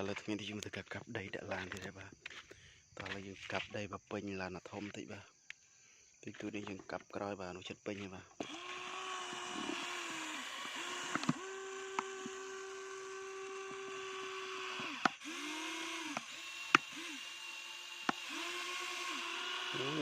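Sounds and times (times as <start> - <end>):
toy electric motor whining: 8.4 - 20.0
sharp clicks: 9.3 - 12.4, 14.8 - 18.7.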